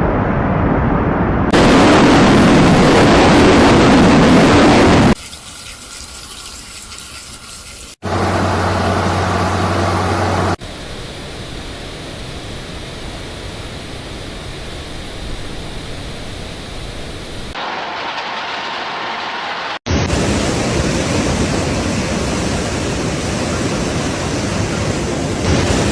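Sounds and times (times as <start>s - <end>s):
steady low hum: 8.0s - 17.8s.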